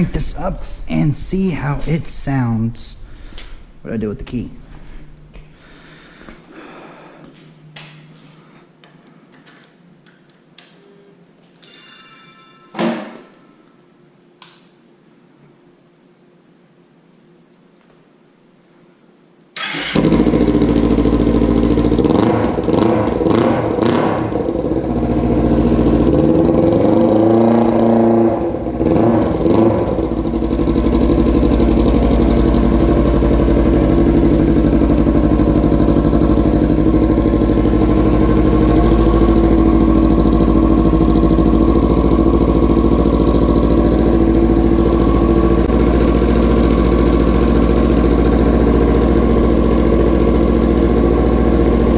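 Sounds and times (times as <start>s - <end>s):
motorcycle engine revving: 19.6s - 51.9s
motorcycle engine starting and idling: 19.6s - 51.9s.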